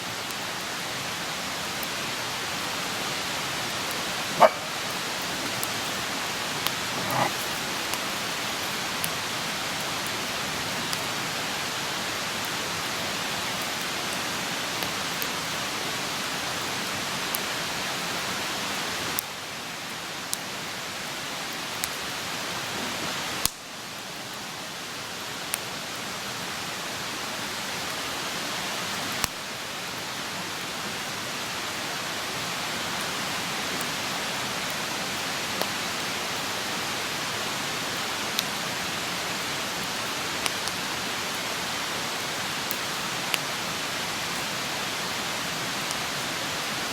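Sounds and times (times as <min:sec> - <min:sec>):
campfire crackling and popping: 0:03.7 - 0:10.2, 0:23.4 - 0:23.6
loud fire snaps: 0:23.4 - 0:23.7, 0:40.4 - 0:40.9.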